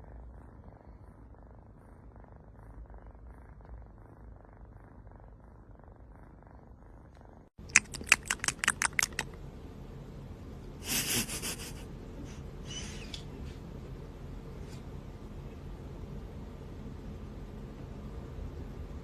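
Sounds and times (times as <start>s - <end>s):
cat purring: 0.0s - 9.4s.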